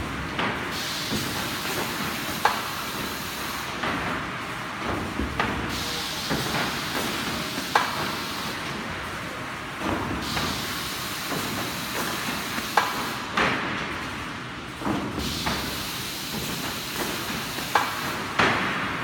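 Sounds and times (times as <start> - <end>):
machine knocks and clunks: 0.3 - 2.8, 3.7 - 8.8, 11.3 - 14.0, 14.8 - 19.0
steady mechanical hiss: 5.6 - 9.5, 10.1 - 13.4.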